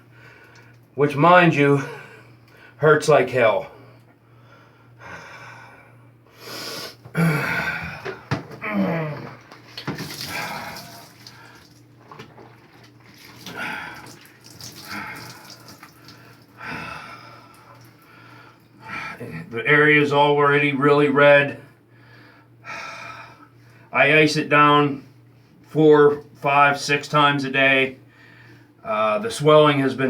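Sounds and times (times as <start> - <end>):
man groaning in pain: 7.2 - 9.4
water splashing: 9.6 - 16.5
scrubbing wound with soap: 9.7 - 16.4.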